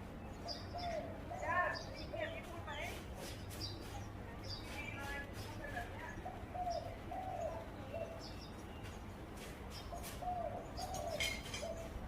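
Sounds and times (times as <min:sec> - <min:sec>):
bird chirps: 0:00.0 - 0:02.5, 0:03.3 - 0:12.0
dove cooing: 0:00.4 - 0:01.8, 0:06.1 - 0:08.3, 0:09.9 - 0:12.0.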